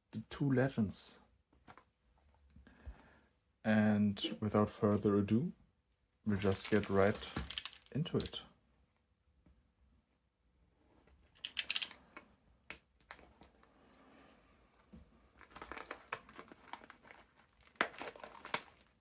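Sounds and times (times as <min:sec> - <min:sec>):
packaging crinkling and tearing: 0:06.4 - 0:08.4, 0:15.4 - 0:19.0.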